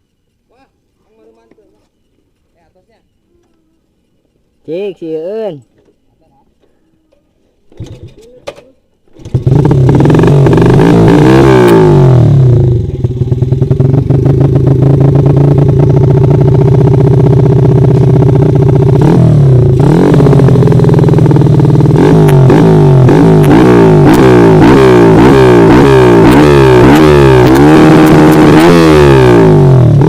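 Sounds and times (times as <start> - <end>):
motorcycle engine revving: 9.1 - 30.0.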